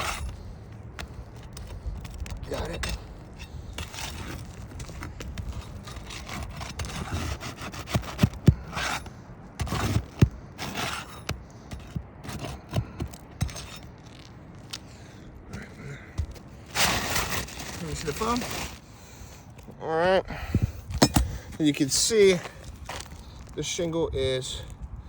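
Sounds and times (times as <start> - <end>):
roof shingle scraping: 0.0 - 19.4.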